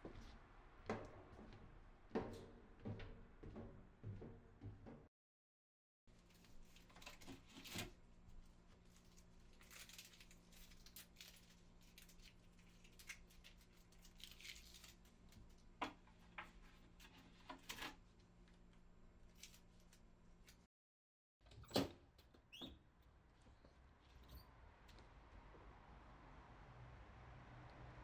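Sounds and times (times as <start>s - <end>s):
small rustles and clicks: 6.2s - 20.7s.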